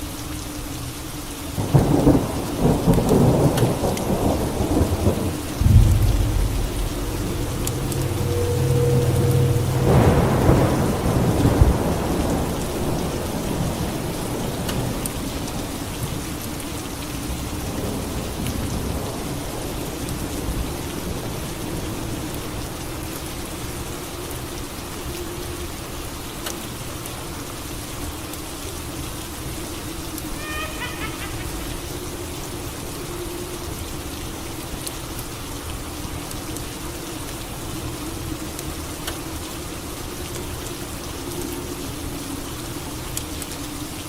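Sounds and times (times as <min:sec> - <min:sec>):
steady rain falling: 0:00.0 - 0:44.0
thunder clap rumbling: 0:01.6 - 0:14.9.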